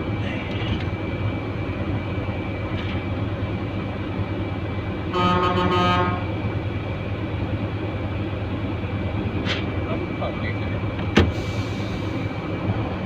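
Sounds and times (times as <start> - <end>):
truck engine running: 0.0 - 13.0
vehicle horn: 5.1 - 6.3.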